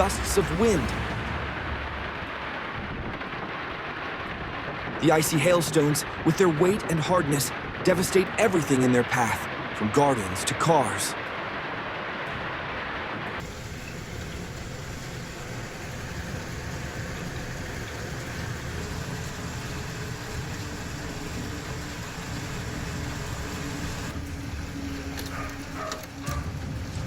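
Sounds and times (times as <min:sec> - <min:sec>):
sharp hail hits: 0:00.0 - 0:11.8
hail and heavy rain: 0:00.0 - 0:27.0.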